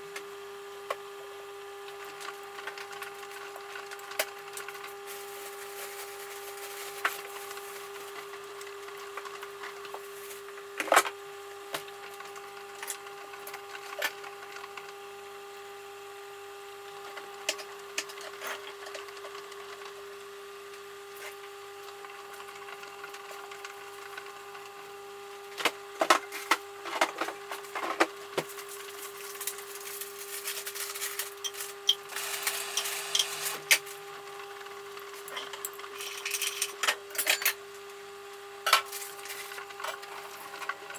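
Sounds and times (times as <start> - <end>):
washing machine hum: 21.0 - 38.0, 38.6 - 40.9.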